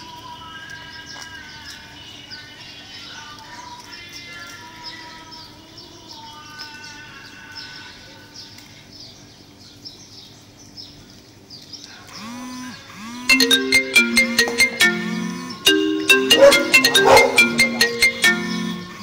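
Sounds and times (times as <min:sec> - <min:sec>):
quick high chirps: 0:13.3 - 0:19.0
quiet background music: 0:13.3 - 0:19.0.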